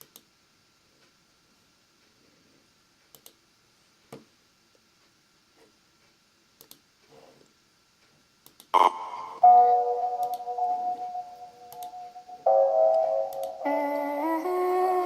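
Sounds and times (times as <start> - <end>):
music with held notes: 8.9 - 15.0.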